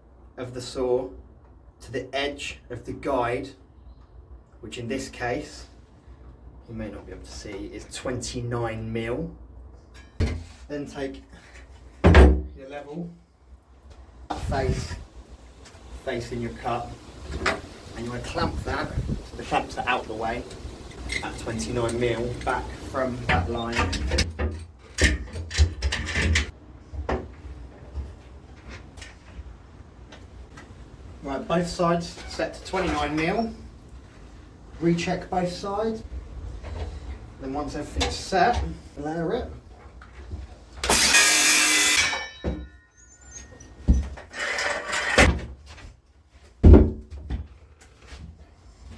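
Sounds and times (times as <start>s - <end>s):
clamps knocking and clicking: 23.3s - 26.5s
circular saw cutting wood: 40.9s - 42.2s.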